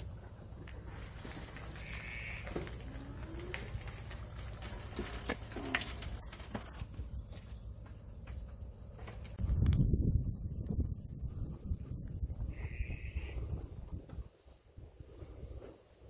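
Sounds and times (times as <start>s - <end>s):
dove cooing: 1.6s - 4.1s.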